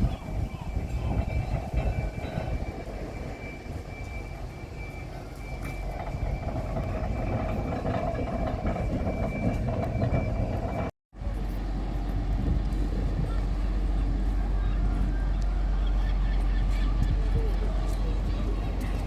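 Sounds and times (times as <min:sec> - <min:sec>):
tram rumbling on track: 0:00.0 - 0:19.0.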